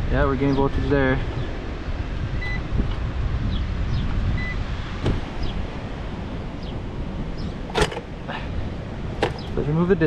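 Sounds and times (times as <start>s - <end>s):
tools clicking and knocking: 7.7s - 8.2s, 9.2s - 9.6s.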